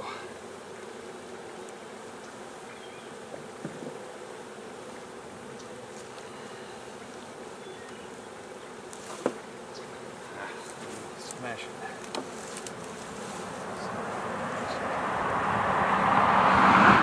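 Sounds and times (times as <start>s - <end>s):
bees buzzing: 0.0s - 17.0s
knocks on hive: 3.3s - 4.0s, 9.1s - 9.5s.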